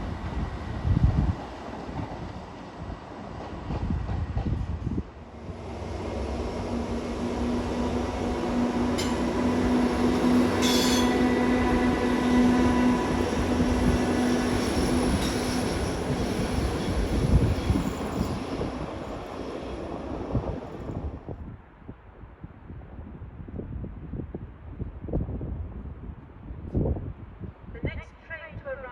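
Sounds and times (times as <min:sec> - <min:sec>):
train rumbling past: 0:00.0 - 0:21.3
high-pitched train squeals: 0:08.9 - 0:19.3.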